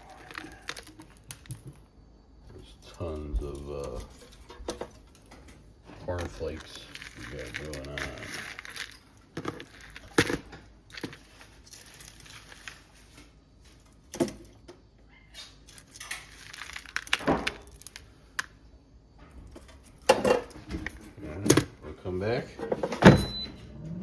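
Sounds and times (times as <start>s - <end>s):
crumbs crackling and rustling: 0.0s - 4.2s, 5.0s - 14.1s, 15.6s - 18.6s.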